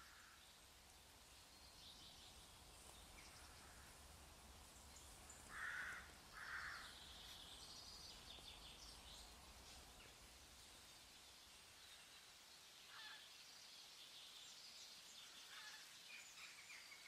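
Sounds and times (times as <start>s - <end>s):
harsh bird caws: 0.0s - 0.4s, 5.5s - 6.9s, 12.9s - 13.2s
faint high bird calls: 12.8s - 13.4s, 15.2s - 17.0s.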